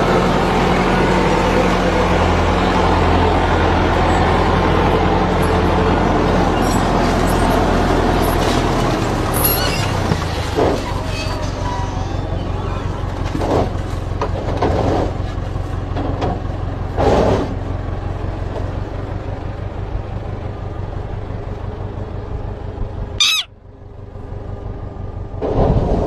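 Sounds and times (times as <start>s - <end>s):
short sharp chirp-like call: 23.2s - 23.5s.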